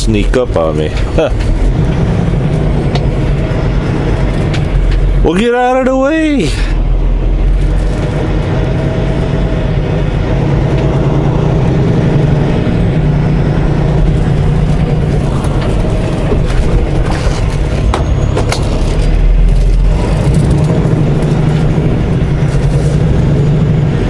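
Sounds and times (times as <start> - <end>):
truck diesel engine drone: 0.0 - 24.0
sharp clicks and knocks: 0.8 - 3.5, 4.2 - 5.2.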